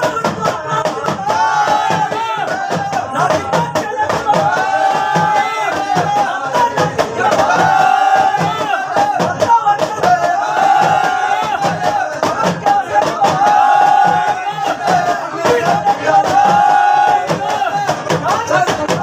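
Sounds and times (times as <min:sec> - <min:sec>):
man singing: 0:00.0 - 0:01.4, 0:02.4 - 0:04.6
percussion steady beat: 0:00.0 - 0:19.0.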